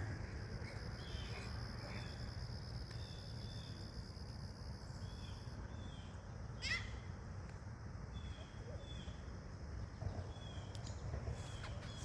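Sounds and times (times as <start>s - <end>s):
bird calling: 5.0s - 7.1s.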